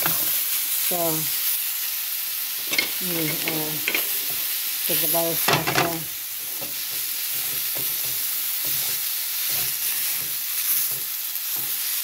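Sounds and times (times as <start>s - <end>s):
chicken sizzling in a pan: 0.0s - 12.0s
utensil knocking against pan: 5.5s - 6.0s.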